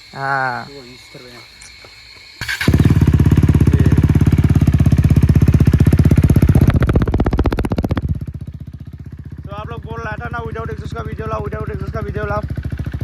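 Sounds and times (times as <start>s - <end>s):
motorcycle engine revving and idling: 2.4s - 13.0s.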